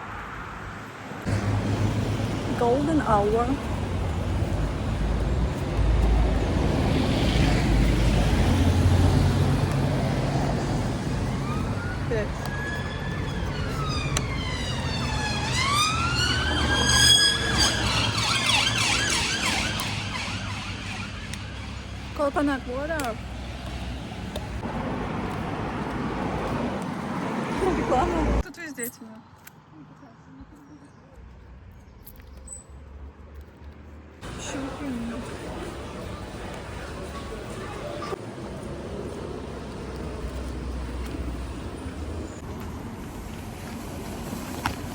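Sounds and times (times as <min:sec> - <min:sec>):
low traffic rumble: 0:00.0 - 0:44.9
emergency siren wailing: 0:10.2 - 0:21.7.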